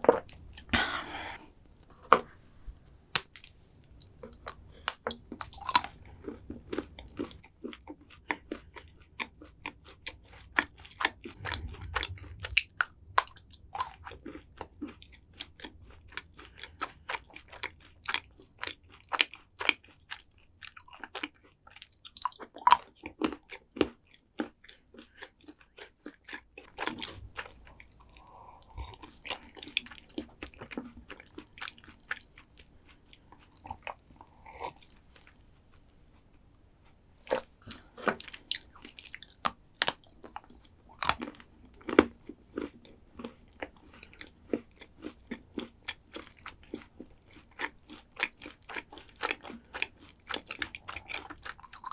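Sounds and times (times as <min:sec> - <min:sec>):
chewing and crunching: 0:03.2 - 0:51.9.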